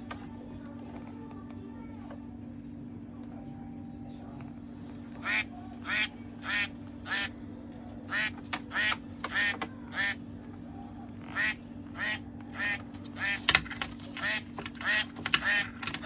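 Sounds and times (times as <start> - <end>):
steady low hum: 0.0 - 16.0
toy duck quacking: 5.2 - 7.3, 8.1 - 10.2, 11.3 - 13.4, 14.2 - 16.0.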